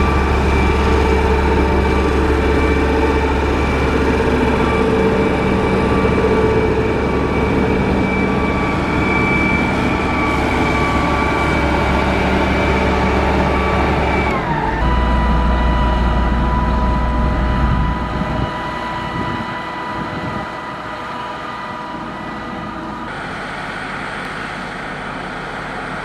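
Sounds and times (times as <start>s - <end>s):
diesel engine drone: 0.0s - 26.0s
engine whine: 0.0s - 26.0s.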